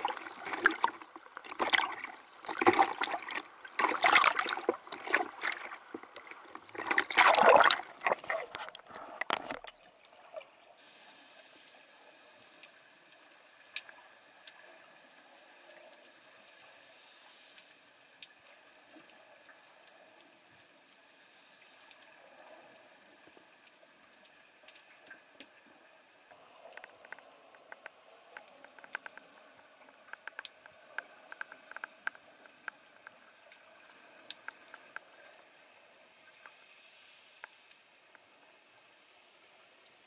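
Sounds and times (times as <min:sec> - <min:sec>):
faint underwater hiss: 0:00.0 - 0:40.0
sharp clicks and crackles: 0:21.8 - 0:35.6.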